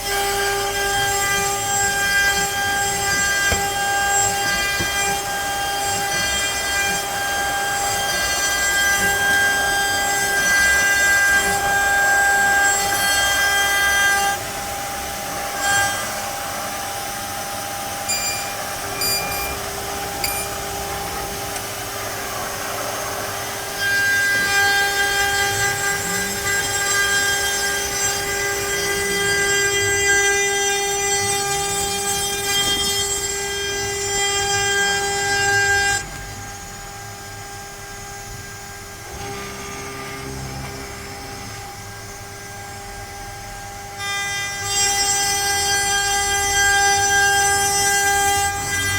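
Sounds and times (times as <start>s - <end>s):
router spindle whining: 0.0s - 48.9s.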